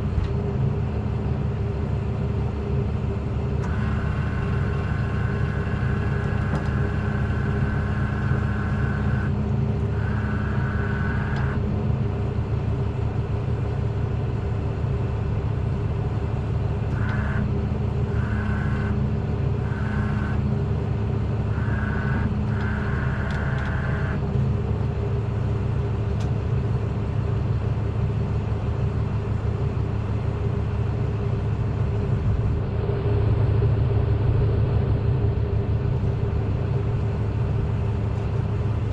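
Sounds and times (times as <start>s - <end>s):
truck engine idling: 0.0s - 38.9s
high-pitched whine: 3.6s - 11.7s, 16.9s - 24.4s.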